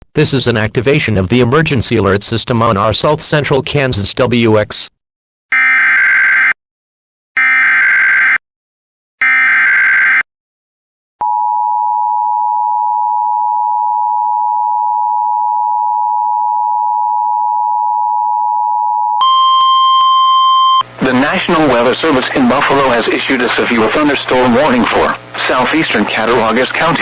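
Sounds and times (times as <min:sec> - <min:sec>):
steady two-tone attention signal: 0:19.2 - 0:20.9.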